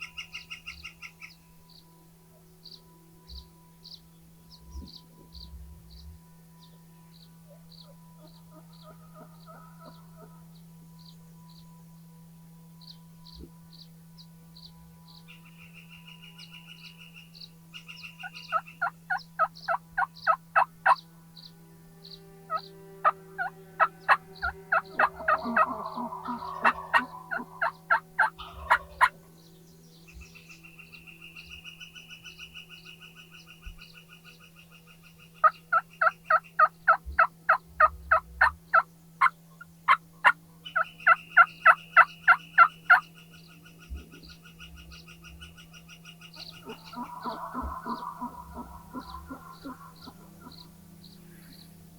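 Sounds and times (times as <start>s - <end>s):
songbird trilling: 0.0s - 1.4s, 14.6s - 51.8s
turkeys yelping: 7.5s - 10.5s, 17.8s - 21.0s, 22.5s - 29.3s, 35.4s - 43.2s, 44.0s - 51.8s
turkey rattling gobble: 8.5s - 10.4s, 18.2s - 21.0s, 22.5s - 29.2s, 35.4s - 43.0s, 46.4s - 50.8s.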